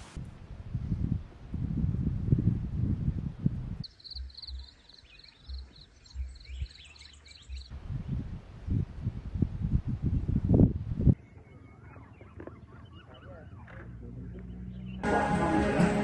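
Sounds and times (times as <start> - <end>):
wind buffeting microphone: 0.0 - 3.8, 7.5 - 15.0
small birds chirping: 3.8 - 8.2, 11.1 - 15.0.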